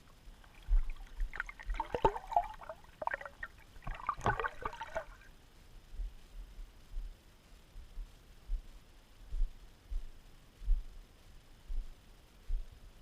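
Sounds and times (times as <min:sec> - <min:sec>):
water gurgling and splashing: 0:00.0 - 0:05.3.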